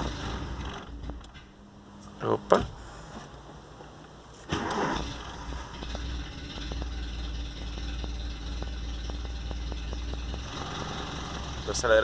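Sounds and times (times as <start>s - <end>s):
car engine idling: 0.0s - 12.0s
light engine ticks: 5.6s - 12.0s.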